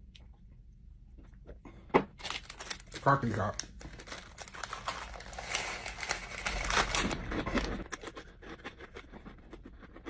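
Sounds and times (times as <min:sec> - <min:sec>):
plastic packaging crinkling: 0:02.2 - 0:08.2.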